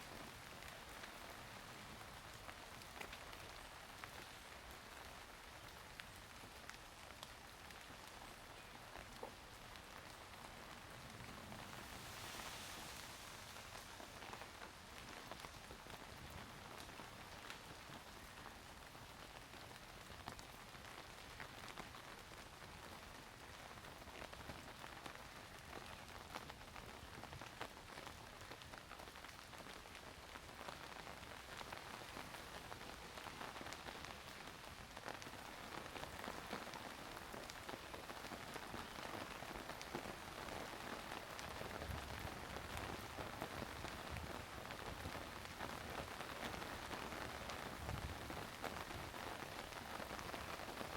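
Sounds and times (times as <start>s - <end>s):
rain pattering: 0.0s - 50.9s.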